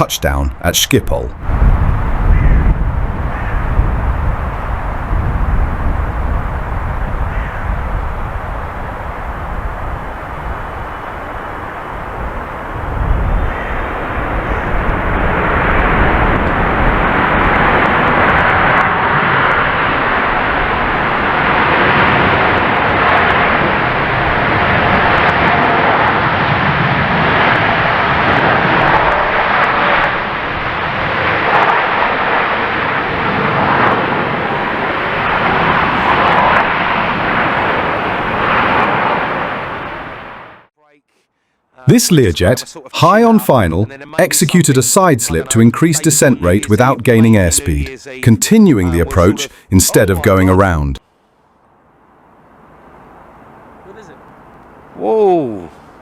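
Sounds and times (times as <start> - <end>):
jet engines roaring: 0.0 - 40.7, 41.9 - 51.0.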